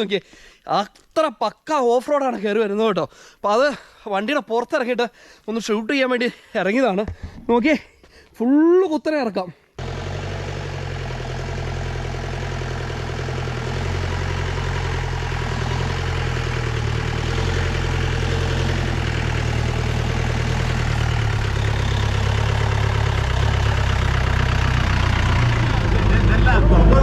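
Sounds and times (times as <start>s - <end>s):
jeep engine running under load: 9.8s - 27.0s.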